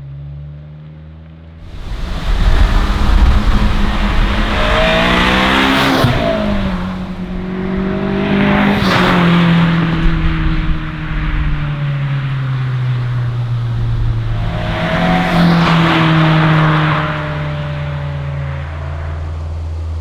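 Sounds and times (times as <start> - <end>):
sports car driving past: 1.6 - 20.0.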